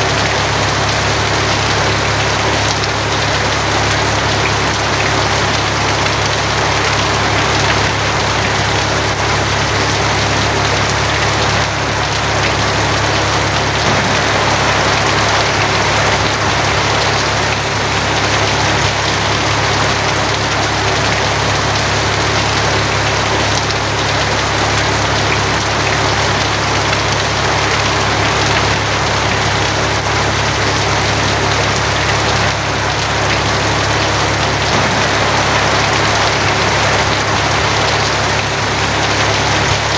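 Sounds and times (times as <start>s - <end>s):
heavy rain on a tin roof: 0.0s - 39.9s
low drone: 11.6s - 18.7s, 33.6s - 39.3s.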